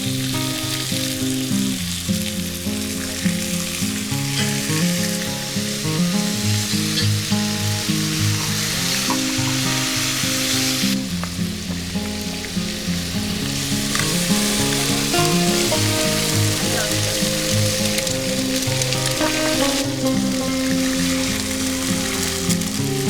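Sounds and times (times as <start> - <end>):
food sizzling in a pan: 0.0 - 23.0
background music: 13.9 - 23.0.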